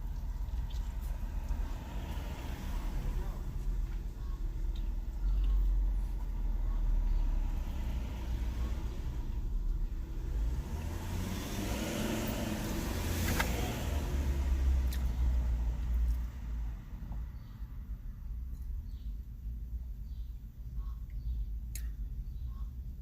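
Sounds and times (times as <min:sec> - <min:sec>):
car passing: 0:00.0 - 0:18.1
low traffic rumble: 0:00.0 - 0:23.0.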